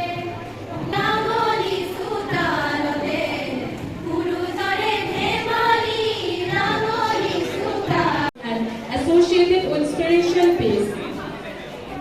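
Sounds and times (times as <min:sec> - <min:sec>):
group singing slow song: 0:00.0 - 0:08.3.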